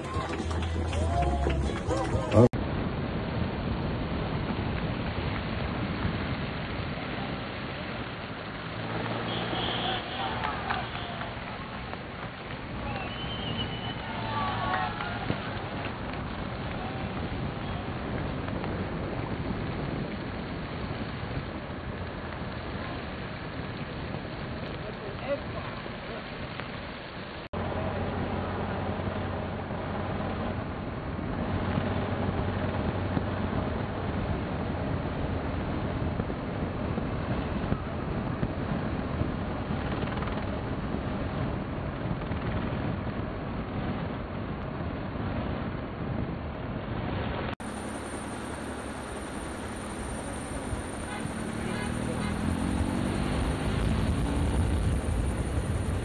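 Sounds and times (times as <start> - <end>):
steady outdoor rushing noise: 0.0 - 56.0
vehicle engine hum: 0.0 - 56.0
wind on microphone: 13.8 - 25.2, 30.2 - 56.0.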